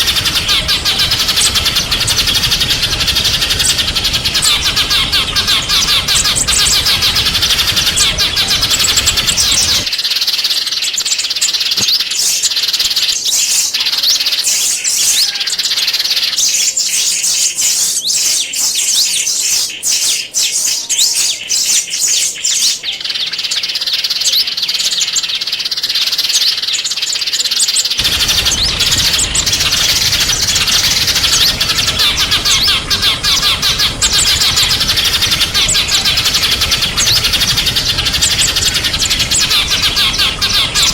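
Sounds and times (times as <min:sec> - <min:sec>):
low background rumble: 0:00.0 - 0:09.9, 0:28.0 - 0:40.9
songbirds chirping: 0:00.0 - 0:40.9.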